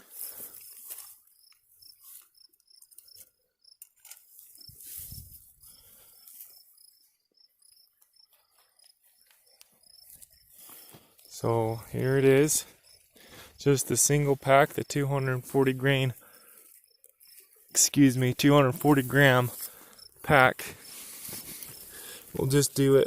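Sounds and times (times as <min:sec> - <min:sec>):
crickets chirping: 0:00.2 - 0:03.8, 0:04.6 - 0:23.0
rustling: 0:20.8 - 0:22.3.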